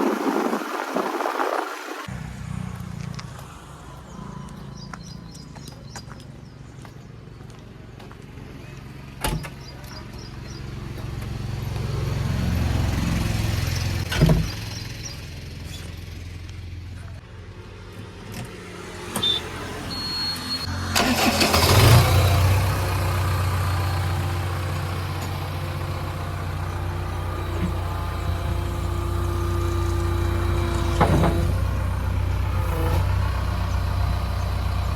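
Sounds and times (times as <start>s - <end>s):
loud rush of noise: 0.0s - 2.4s
diesel engine running: 0.0s - 34.9s.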